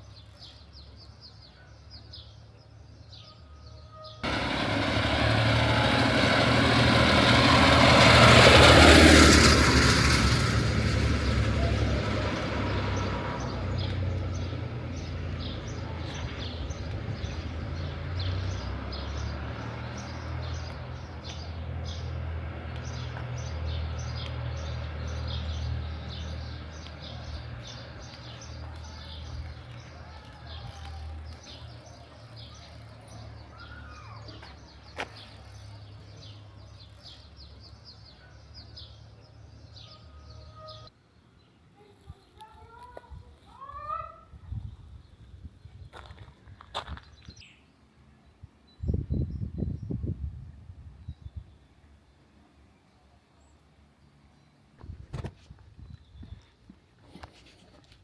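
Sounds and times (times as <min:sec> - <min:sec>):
vehicle rumble moving away: 0:04.2 - 0:40.9.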